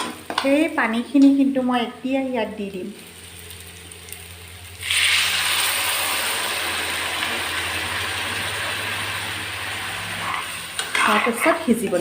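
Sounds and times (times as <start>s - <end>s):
loud sizzle in hot oil: 0.0s - 12.0s
water poured into pan: 4.8s - 8.6s.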